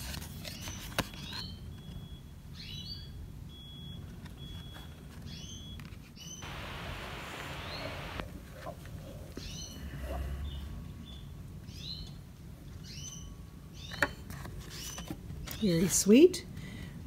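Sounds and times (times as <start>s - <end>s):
bird chirping: 5.3s - 8.2s
soft hiss: 6.4s - 8.3s.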